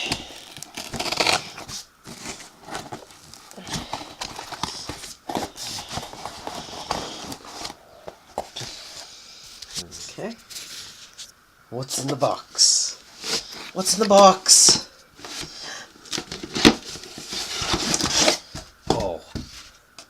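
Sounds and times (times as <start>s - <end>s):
packing tape ripping: 0.0s - 7.7s, 16.1s - 18.5s
cardboard box being torn open: 0.0s - 7.8s, 16.1s - 19.2s.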